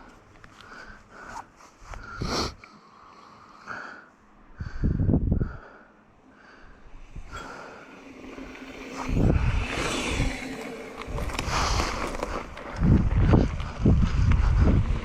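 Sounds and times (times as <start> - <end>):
mountain bike tyre noise and rattle: 0.0 - 4.0, 6.4 - 15.0
wind gusts buffeting microphone: 4.5 - 5.7, 6.8 - 15.0.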